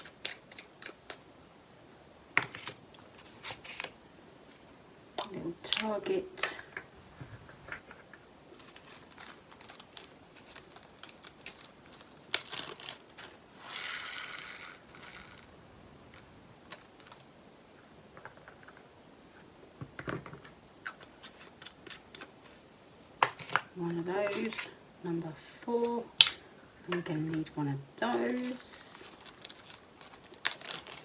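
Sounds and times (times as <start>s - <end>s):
plastic bag crinkling: 8.5s - 17.2s, 28.0s - 31.0s.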